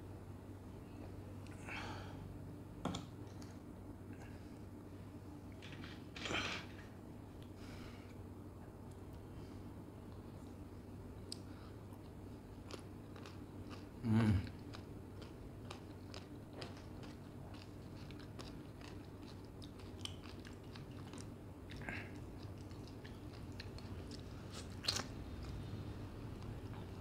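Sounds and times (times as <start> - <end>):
wet chewing and mouth smacks: 14.6 - 25.6.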